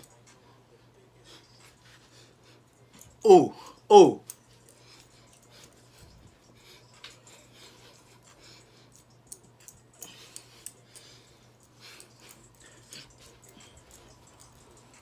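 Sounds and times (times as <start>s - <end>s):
small clicks and rustles: 4.2s - 15.0s.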